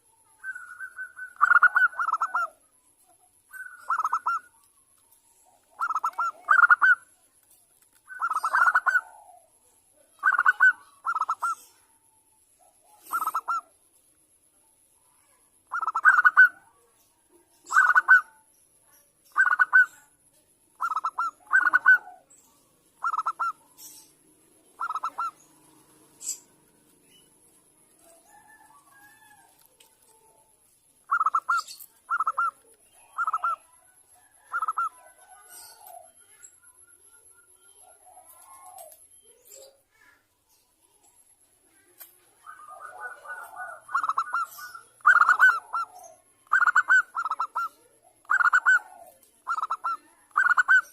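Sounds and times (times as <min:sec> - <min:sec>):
dove cooing: 0:00.0 - 0:02.6, 0:03.6 - 0:04.6, 0:05.4 - 0:07.1, 0:08.0 - 0:11.9, 0:12.8 - 0:13.7, 0:15.7 - 0:16.8, 0:17.6 - 0:18.4, 0:19.3 - 0:20.0, 0:20.8 - 0:22.4, 0:23.0 - 0:26.8, 0:27.8 - 0:30.5, 0:31.1 - 0:36.4, 0:37.8 - 0:39.7, 0:42.3 - 0:50.9.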